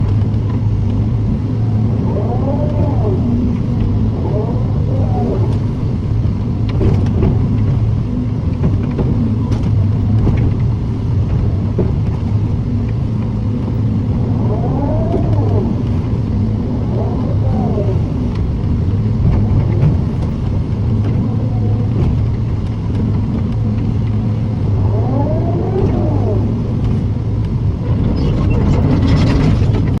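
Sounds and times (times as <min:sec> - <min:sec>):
rising and falling whines: 0:00.0 - 0:29.9
excavator diesel engine running: 0:00.0 - 0:30.0.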